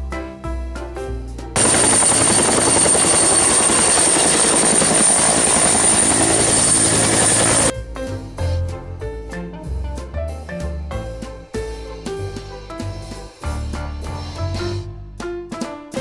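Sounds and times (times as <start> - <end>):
music: 0.0 - 4.8, 5.8 - 16.0
helicopter rotor chopping: 1.6 - 7.7
high-pitched turbine whine: 1.6 - 7.7.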